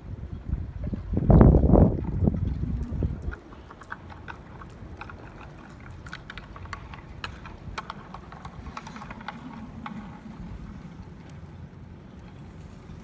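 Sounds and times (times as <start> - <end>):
wind buffeting microphone: 0.0 - 13.0
ticks and clicks: 1.3 - 11.4.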